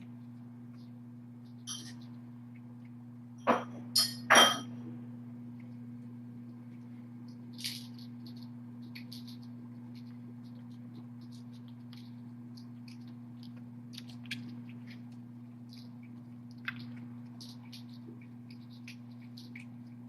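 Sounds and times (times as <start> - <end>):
low electrical hum: 0.0 - 20.0
small clicks and scratches: 5.6 - 20.0.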